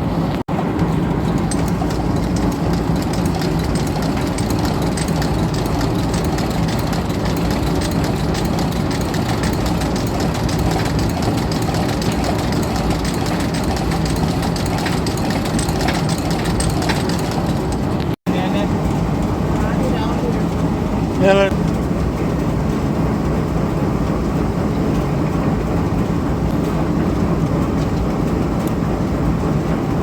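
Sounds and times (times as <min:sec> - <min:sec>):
low engine hum: 0:00.0 - 0:30.0
sewing machine clatter: 0:00.3 - 0:22.0.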